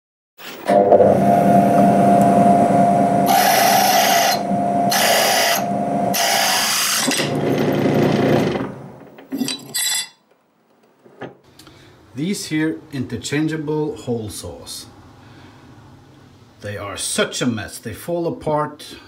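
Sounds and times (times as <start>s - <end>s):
drill motor hum: 0.7s - 8.9s
drill hole saw cutting: 3.2s - 8.7s.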